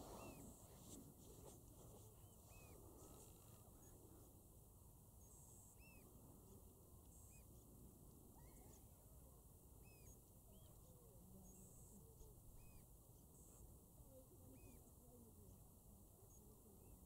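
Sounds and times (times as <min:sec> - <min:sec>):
distant bird calls: 0:00.0 - 0:00.7, 0:02.1 - 0:04.1, 0:05.2 - 0:07.6, 0:08.3 - 0:09.0, 0:09.8 - 0:13.6
low steady background noise: 0:00.0 - 0:17.0.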